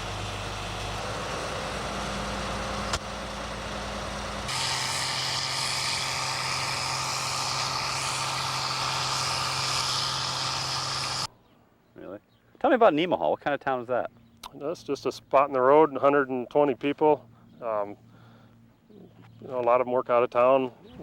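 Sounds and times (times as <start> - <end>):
engine drone with hiss: 0.0 - 11.3
tractor engines idling: 0.0 - 11.3.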